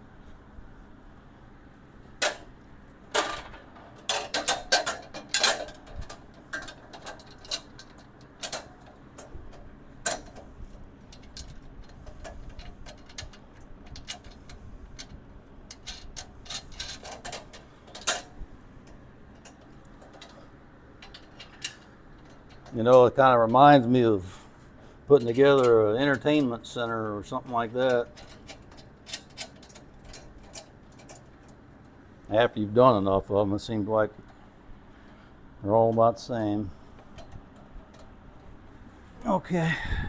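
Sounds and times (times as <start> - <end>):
metal parts clicking and clinking: 3.1 - 20.4, 21.0 - 23.9, 25.1 - 31.6.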